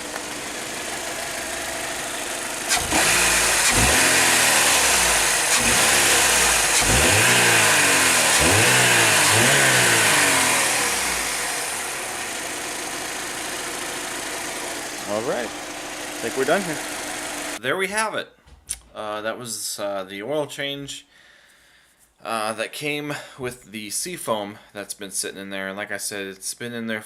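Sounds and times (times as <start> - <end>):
car engine revving: 0.0 - 17.6.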